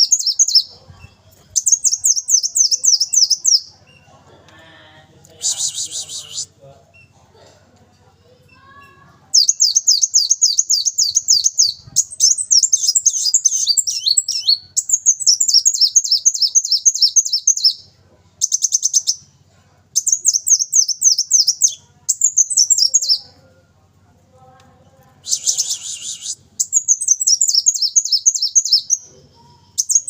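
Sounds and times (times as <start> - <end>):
sunbird singing: 0.0 - 0.7, 1.6 - 3.7, 9.4 - 19.3, 20.0 - 23.4, 25.2 - 30.0.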